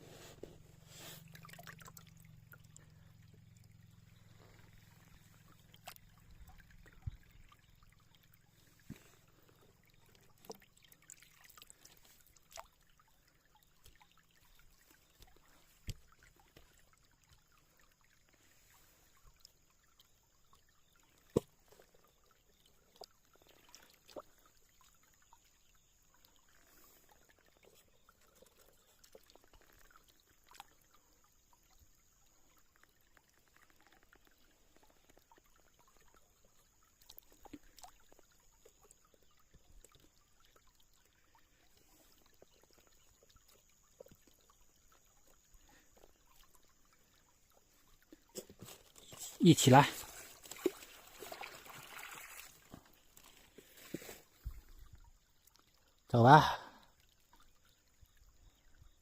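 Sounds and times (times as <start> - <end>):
faint stream trickling: 0.0 - 59.0.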